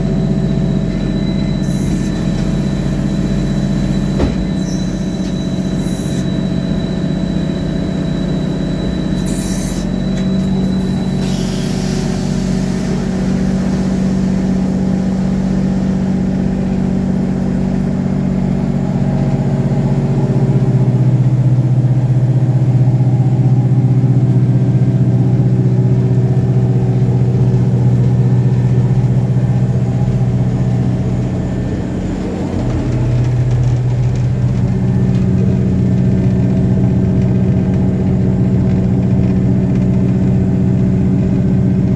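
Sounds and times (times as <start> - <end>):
thin high whine: 0.0 - 18.1
drill rig engine running: 0.0 - 41.9.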